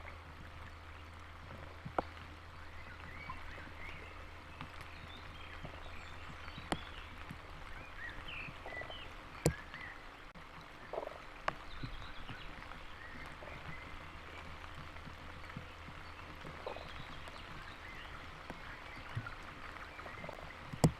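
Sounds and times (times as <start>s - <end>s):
faint bird chirps: 0.0s - 10.1s
frogs croaking: 0.0s - 10.1s, 10.7s - 20.9s
raindrops ticking on microphone: 0.0s - 20.9s.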